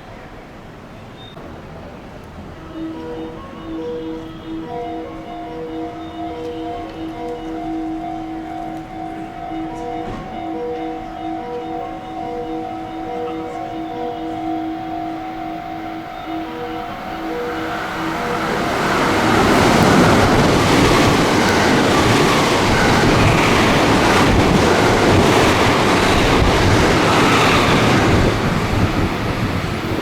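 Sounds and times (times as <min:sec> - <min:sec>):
train passing at speed: 0:00.0 - 0:30.0
electronic tones: 0:02.7 - 0:28.0.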